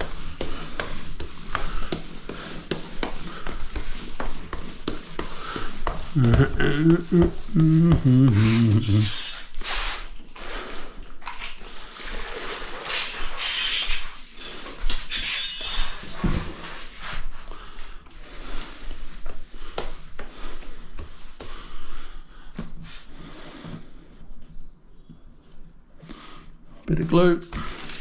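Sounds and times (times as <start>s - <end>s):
sponge scrubbing tiles: 0.0s - 17.4s.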